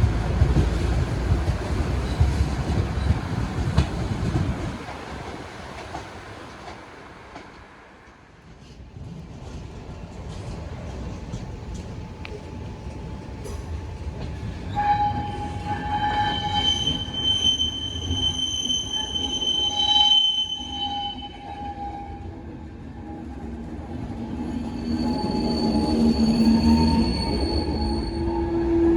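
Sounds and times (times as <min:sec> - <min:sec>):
train carriages rumbling: 0:00.0 - 0:28.9
wheels squealing: 0:14.7 - 0:21.9, 0:24.4 - 0:28.6.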